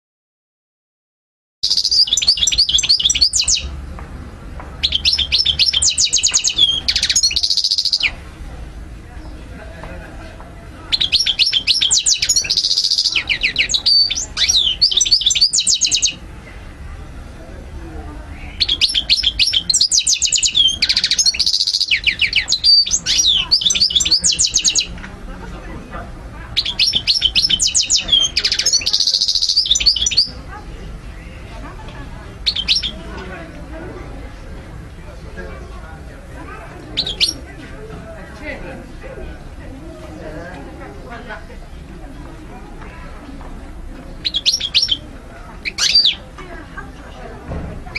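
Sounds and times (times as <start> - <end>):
goldfinch twittering song: 1.6 - 3.7, 4.8 - 8.2, 10.9 - 16.2, 18.5 - 24.9, 26.6 - 30.3, 32.4 - 33.0, 37.0 - 37.4, 44.2 - 45.0.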